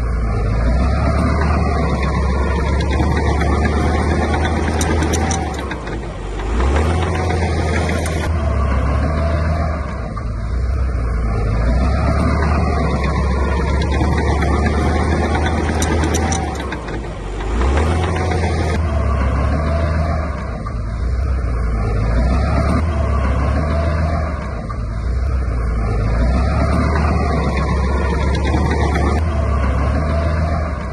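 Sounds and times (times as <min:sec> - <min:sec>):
heavy diesel engine under load: 0:00.0 - 0:30.9.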